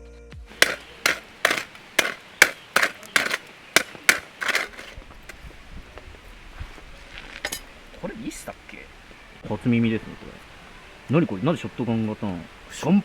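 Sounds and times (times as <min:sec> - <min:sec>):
sharp scraping strikes: 0:00.5 - 0:05.4.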